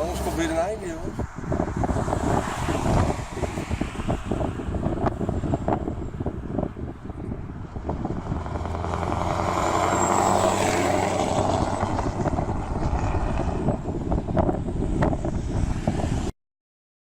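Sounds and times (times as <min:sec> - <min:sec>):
diesel truck engine drone: 0:04.0 - 0:15.6.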